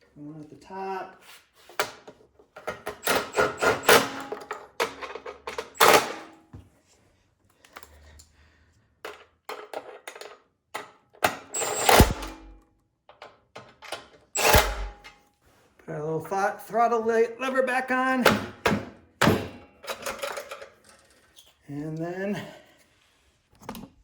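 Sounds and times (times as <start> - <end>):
hand tools and metal parts clicking: 9.0 - 12.5, 13.1 - 15.2.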